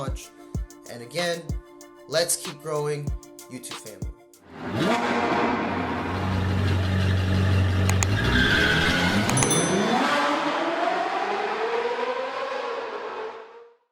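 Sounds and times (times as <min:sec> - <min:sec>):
car engine revving: 0:04.5 - 0:13.7.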